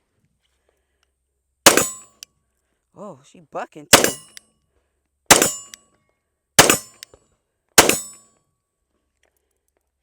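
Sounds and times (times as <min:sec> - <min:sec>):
pistol shots: 0:01.7 - 0:02.1, 0:03.9 - 0:04.4, 0:05.3 - 0:05.8, 0:06.6 - 0:07.0, 0:07.8 - 0:08.2.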